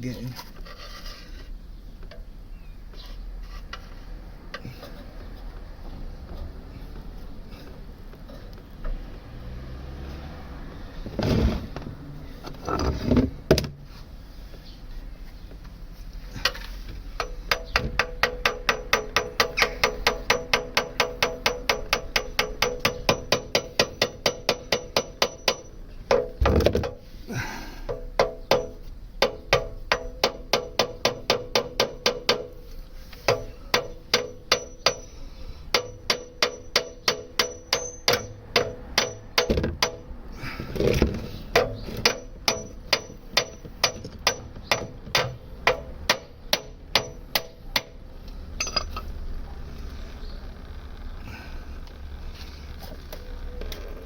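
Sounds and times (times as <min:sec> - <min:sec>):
hammer blows on metal: 0:33.2 - 0:40.6
metal clattering: 0:48.5 - 0:49.2.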